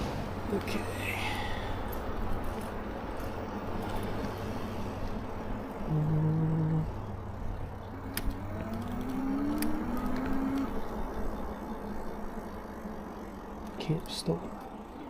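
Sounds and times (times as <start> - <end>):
steady hum: 0.0 - 15.0
wind and tyre noise: 0.0 - 15.0
rising motor whine: 4.3 - 13.7.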